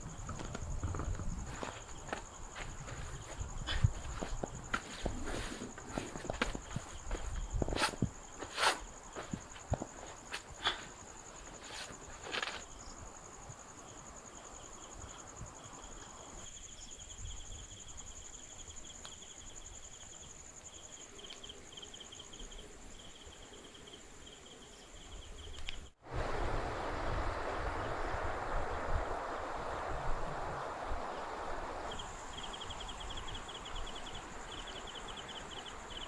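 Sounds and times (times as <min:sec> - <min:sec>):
crickets trilling: 0:00.0 - 0:36.0
steady rushing noise: 0:26.0 - 0:34.4.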